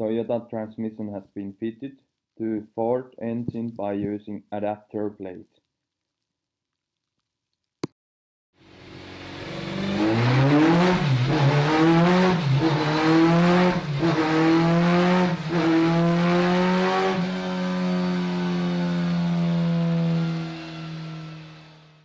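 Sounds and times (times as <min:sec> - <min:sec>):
race car engine revving: 0:08.8 - 0:22.0.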